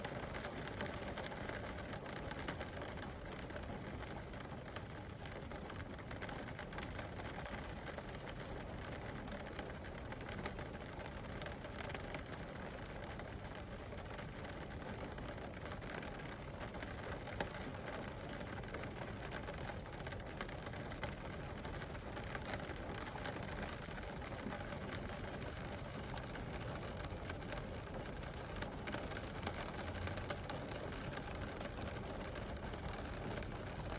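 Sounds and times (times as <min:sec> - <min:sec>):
raindrops ticking: 0:13.1 - 0:33.9.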